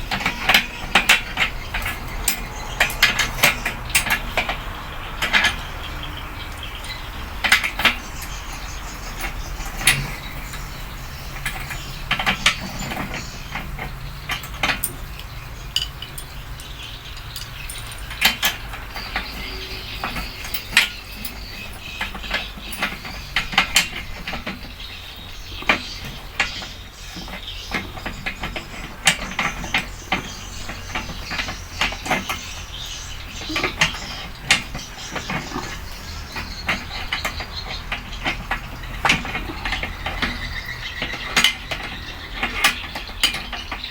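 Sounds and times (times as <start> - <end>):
metallic clinks and knocks: 0.0 - 4.6, 6.5 - 24.7.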